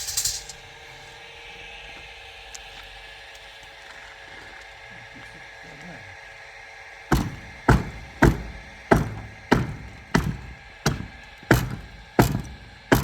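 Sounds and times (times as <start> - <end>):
heavy blows on wood: 7.1 - 13.0.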